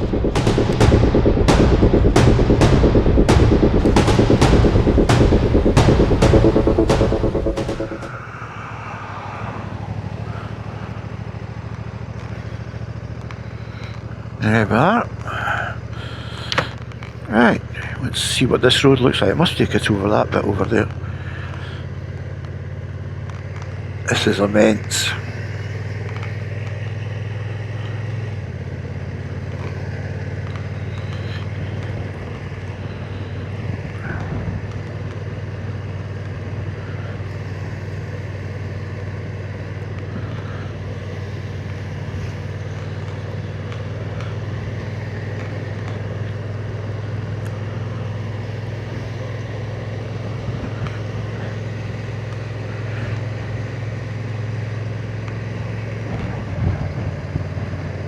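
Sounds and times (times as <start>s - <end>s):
motorcycle engine running: 0.0s - 8.1s
road and wind noise: 8.0s - 58.0s.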